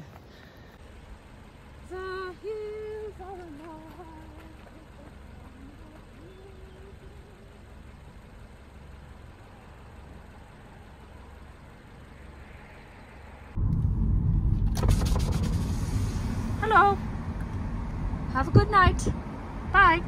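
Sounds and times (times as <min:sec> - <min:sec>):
car engine rumbling: 0:00.0 - 0:20.0
loud low rumble: 0:13.5 - 0:20.0.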